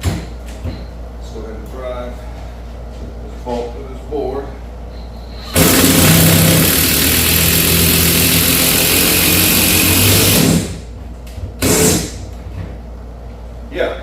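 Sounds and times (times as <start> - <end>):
cordless impact driver hammering: 5.5 - 10.8.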